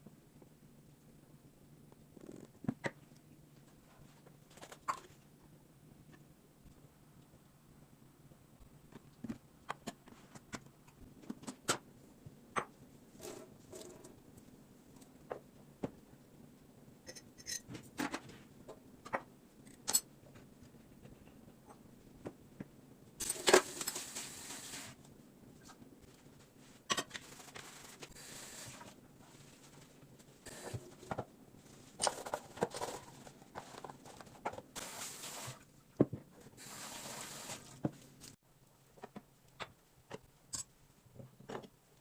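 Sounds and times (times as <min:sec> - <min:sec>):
hissing or rustling: 0:23.4 - 0:25.1, 0:36.6 - 0:38.4.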